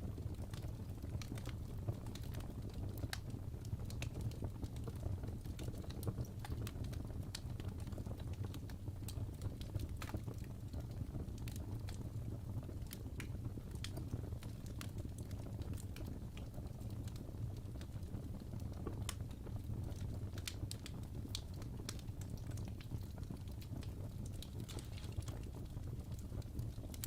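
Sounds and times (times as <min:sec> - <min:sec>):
low rumble of flames: 0:00.0 - 0:27.0
logs popping and snapping: 0:24.2 - 0:25.8.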